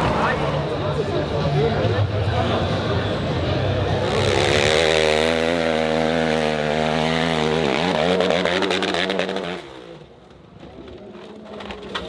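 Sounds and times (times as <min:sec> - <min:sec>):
dirt bike engine revving: 0:03.8 - 0:10.1.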